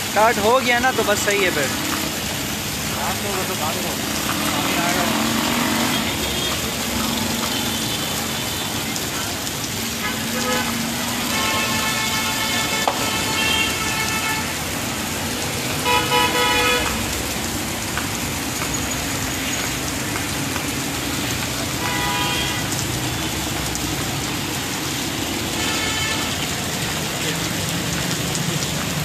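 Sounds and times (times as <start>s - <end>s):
heavy rain: 0.0s - 29.0s
car horns honking: 10.0s - 14.7s, 15.8s - 17.1s, 21.7s - 23.3s, 25.5s - 26.5s.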